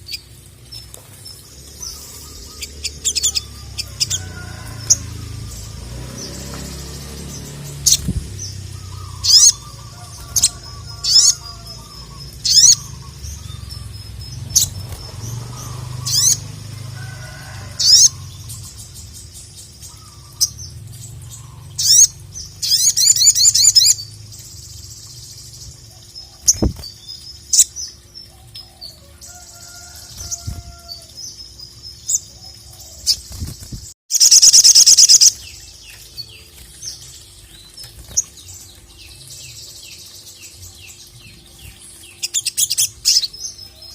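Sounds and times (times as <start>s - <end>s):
bird chirping and trilling: 0.0s - 43.9s.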